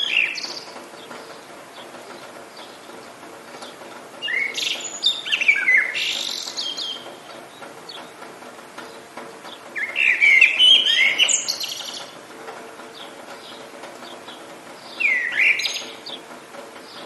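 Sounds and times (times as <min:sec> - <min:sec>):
songbird warbling: 0:00.0 - 0:02.8, 0:04.2 - 0:07.2, 0:09.7 - 0:12.2, 0:14.9 - 0:16.2
rain hiss: 0:00.0 - 0:17.0.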